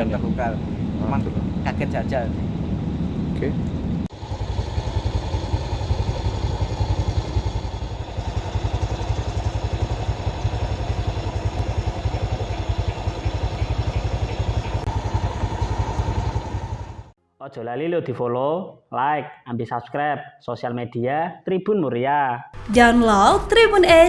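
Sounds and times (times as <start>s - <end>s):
engine running with low throb: 0.0s - 17.2s.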